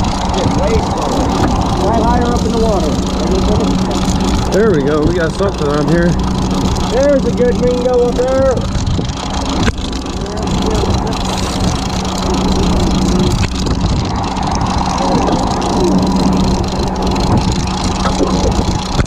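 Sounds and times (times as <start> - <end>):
boat engine humming: 0.0 - 19.0
faint voices: 0.3 - 6.2, 10.1 - 11.8.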